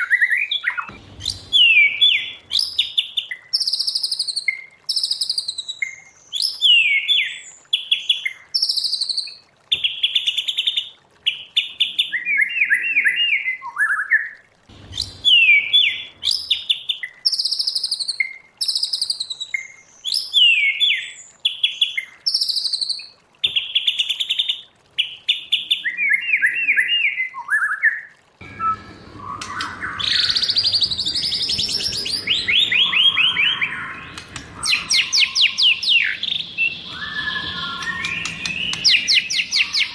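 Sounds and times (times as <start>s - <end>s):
bird singing whistles and trills: 0.0s - 10.0s, 11.8s - 21.2s, 25.7s - 39.9s
steady background noise: 0.9s - 2.6s, 14.6s - 16.3s, 28.4s - 39.9s.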